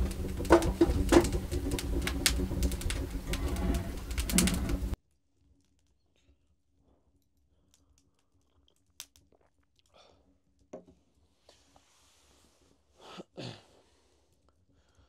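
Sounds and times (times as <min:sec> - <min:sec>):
person chewing crusty bread: 0:07.6 - 0:10.2.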